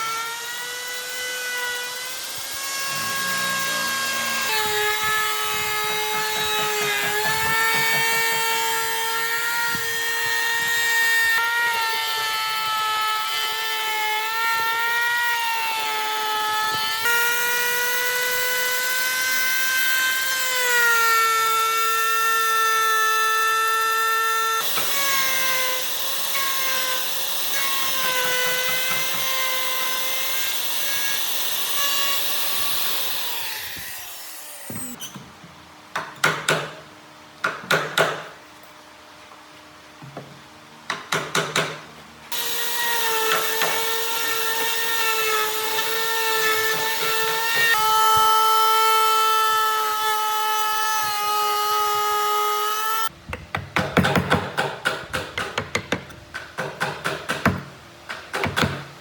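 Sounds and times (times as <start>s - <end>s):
power tool motor whining: 0.0s - 35.1s, 42.3s - 53.1s
sharp knocks: 3.9s - 10.8s.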